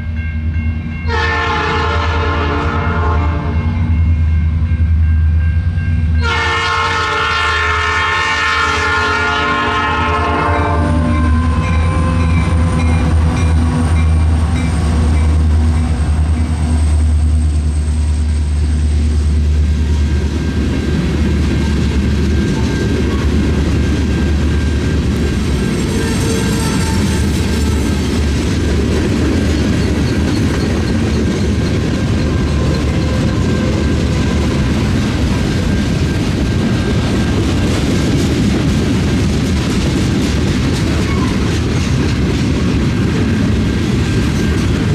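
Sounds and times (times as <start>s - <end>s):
passing train rumble: 0.0s - 44.9s
train horn: 1.0s - 3.9s, 6.2s - 12.9s, 25.6s - 28.0s
diesel engines droning: 10.8s - 38.0s.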